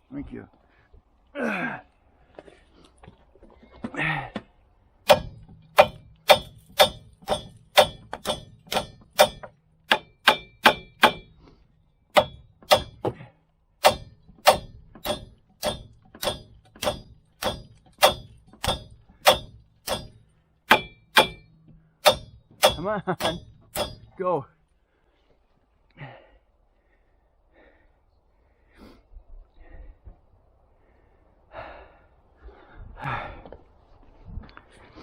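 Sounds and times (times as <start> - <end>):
hammer striking metal: 5.0 - 11.4, 12.1 - 24.2.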